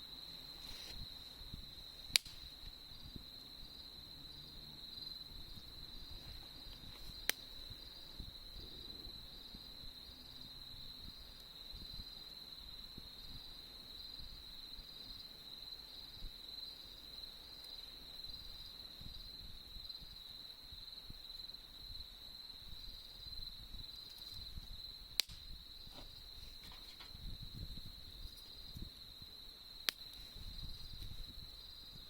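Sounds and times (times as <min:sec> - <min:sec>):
crickets trilling: 0:00.0 - 0:32.0
sharp pop: 0:02.1 - 0:02.5, 0:25.2 - 0:25.5.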